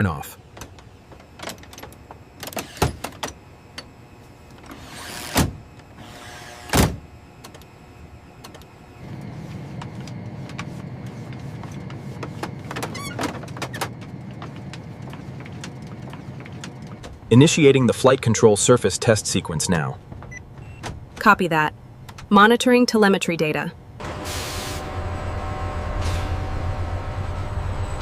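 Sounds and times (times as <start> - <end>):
low motor hum: 3.0 - 17.6, 23.8 - 28.0.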